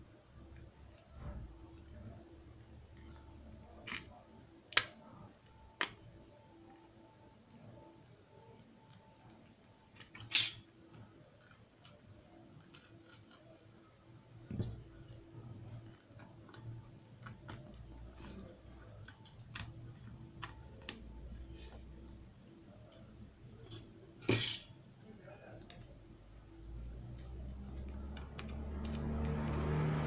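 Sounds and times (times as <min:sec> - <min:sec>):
small tools clicking and tapping: 0:08.5 - 0:13.7, 0:27.1 - 0:29.7.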